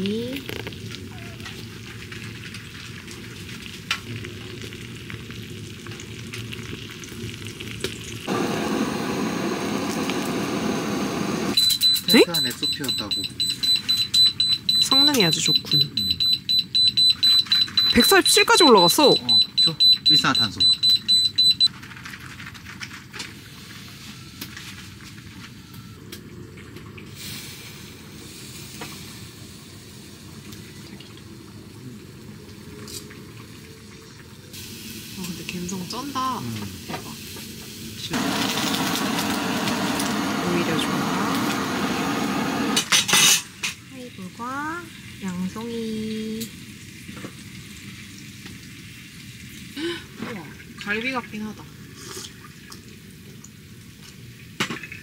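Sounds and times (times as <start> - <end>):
meat sizzling in butter: 0.5 - 11.6, 34.5 - 42.7
carbon monoxide alarm beeping: 8.3 - 21.7.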